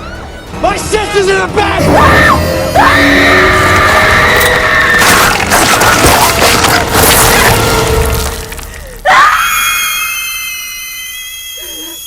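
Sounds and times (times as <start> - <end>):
people screaming: 0.0 - 0.5, 1.8 - 6.4, 9.0 - 12.0.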